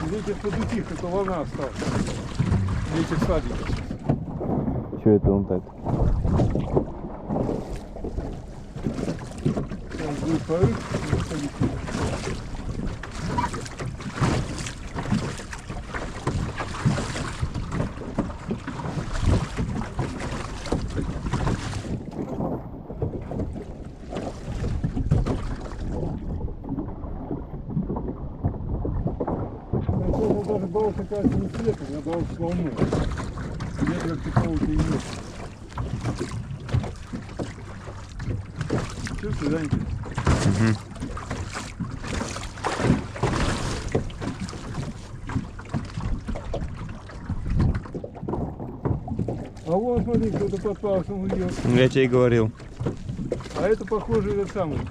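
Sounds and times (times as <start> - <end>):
wind buffeting microphone: 0.0 - 15.3, 16.4 - 37.4
water slapping against hull: 0.0 - 54.9.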